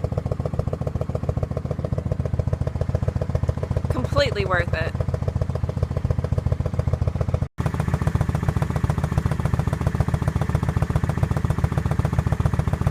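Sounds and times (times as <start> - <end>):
motorcycle engine idling loudly: 0.0 - 12.9.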